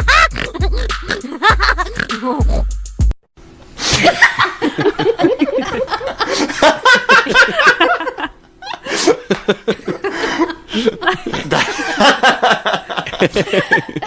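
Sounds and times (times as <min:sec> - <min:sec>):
hearty laughter: 0:00.0 - 0:02.1, 0:03.9 - 0:14.0
person speaking: 0:00.0 - 0:02.7
deep bass music: 0:00.0 - 0:03.2.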